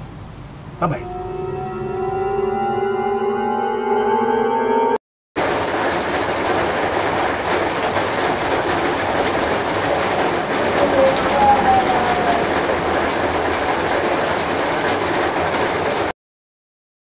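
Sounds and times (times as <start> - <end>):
held musical tone: 0.8 - 5.0
heavy rain pouring: 5.4 - 16.1.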